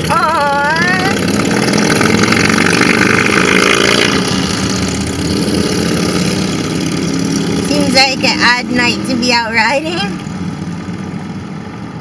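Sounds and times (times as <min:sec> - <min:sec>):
motorcycles riding past: 0:00.0 - 0:12.0.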